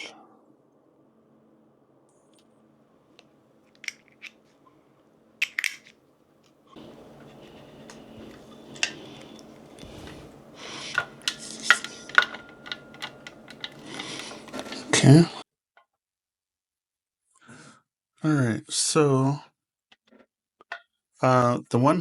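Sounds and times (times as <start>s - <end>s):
metal parts clinking: 3.7s - 4.4s, 5.4s - 5.9s, 6.8s - 15.4s
handling rustle: 6.8s - 15.4s.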